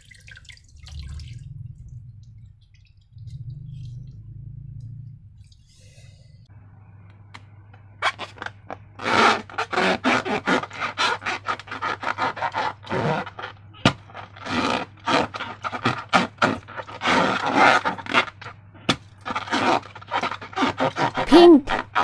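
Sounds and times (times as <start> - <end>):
steady low hum: 0.5 - 9.6
scraping and rubbing slime: 7.9 - 22.0.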